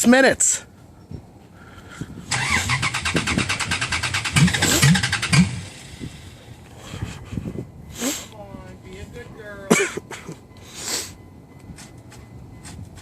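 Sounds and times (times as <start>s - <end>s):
engine starter cranking: 2.3s - 6.4s.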